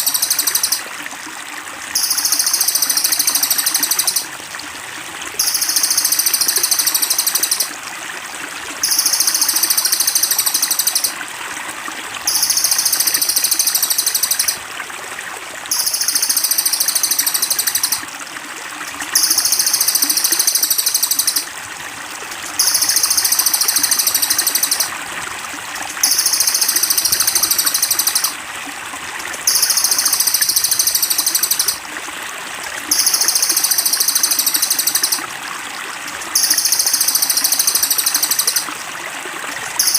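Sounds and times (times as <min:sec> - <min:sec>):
water trickling: 0:00.0 - 0:39.9
bird trilling rapidly: 0:05.4 - 0:07.7.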